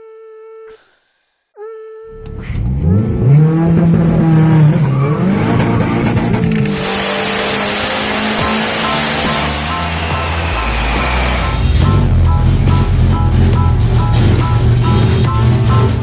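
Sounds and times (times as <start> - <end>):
car engine revving: 2.2 - 16.0
steady tone: 2.5 - 16.0
loud hiss: 6.7 - 13.0.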